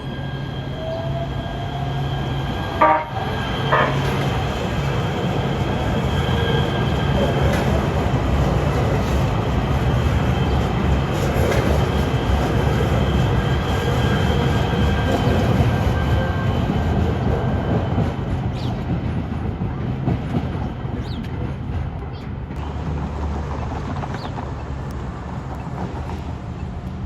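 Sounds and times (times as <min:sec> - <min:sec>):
train rumbling on track: 0:00.0 - 0:27.0.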